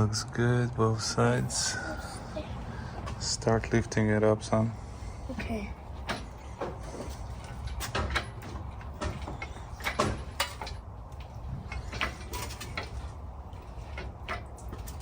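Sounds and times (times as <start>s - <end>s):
metallic clanks and scrapes: 6.1s - 15.0s.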